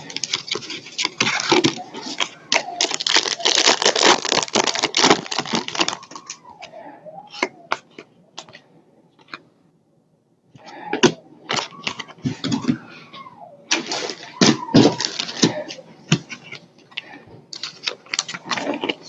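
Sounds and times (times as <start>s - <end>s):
wrappers crinkling and tearing: 0.0s - 6.4s, 13.7s - 15.6s.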